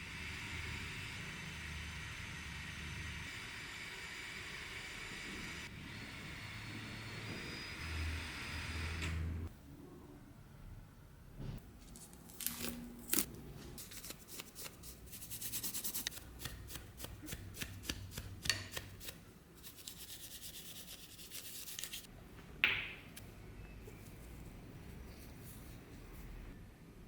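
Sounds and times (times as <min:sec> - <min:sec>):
hands rubbing and scraping metal: 0:13.6 - 0:22.1.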